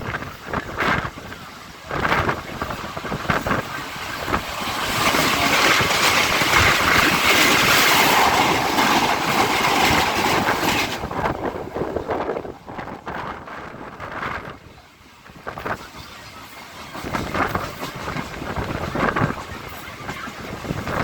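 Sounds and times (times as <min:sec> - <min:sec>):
train running at speed: 0:00.0 - 0:21.0
wind noise: 0:00.0 - 0:21.0
wheels knocking over rail joints: 0:01.9 - 0:11.5.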